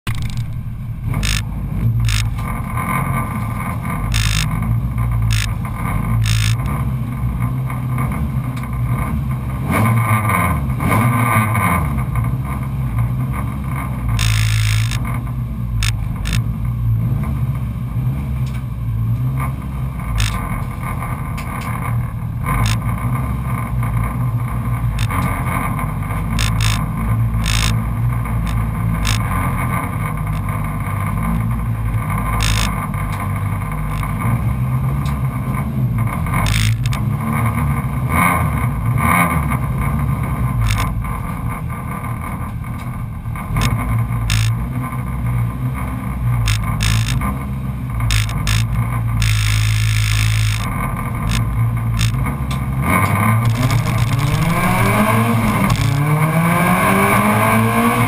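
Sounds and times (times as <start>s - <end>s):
short clicks and rattles: 0.0s - 6.8s, 14.1s - 16.5s, 19.4s - 23.0s, 24.9s - 37.1s, 40.5s - 41.6s, 42.5s - 45.0s, 46.3s - 56.1s
race car engine idling: 0.0s - 9.7s, 11.9s - 56.5s.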